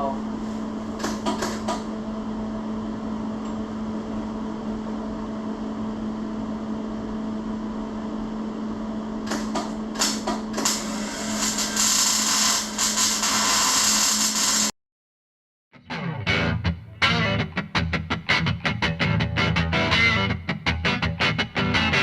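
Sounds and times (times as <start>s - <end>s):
power tool on steel: 10.6s - 14.7s.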